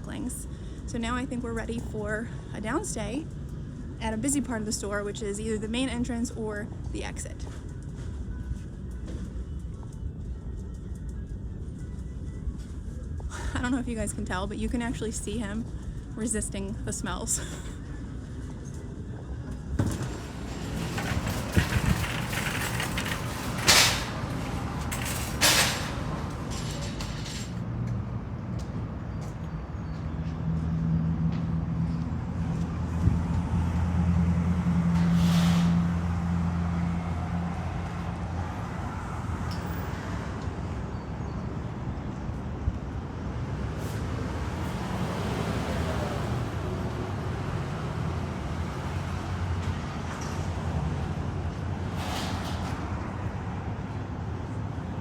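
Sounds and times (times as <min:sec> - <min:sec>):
vehicle engine humming: 0:00.0 - 0:55.0.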